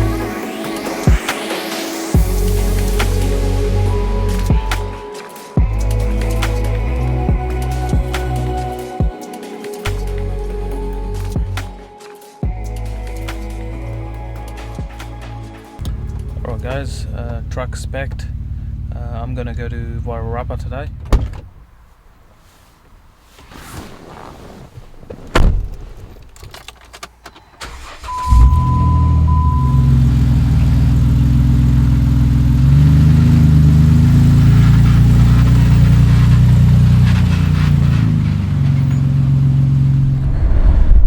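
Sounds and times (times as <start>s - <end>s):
truck engine running: 2.2s - 9.0s, 12.5s - 21.2s, 28.2s - 40.2s
short beep: 28.0s - 30.1s.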